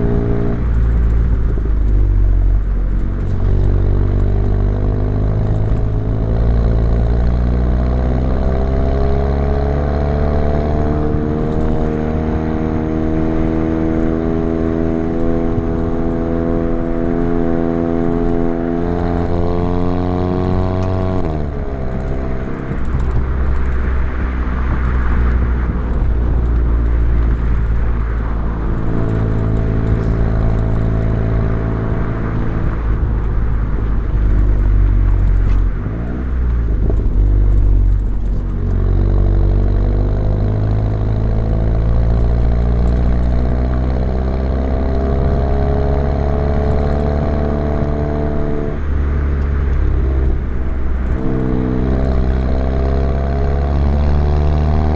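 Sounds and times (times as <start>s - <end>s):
car exhaust accelerating: 0.0s - 54.9s.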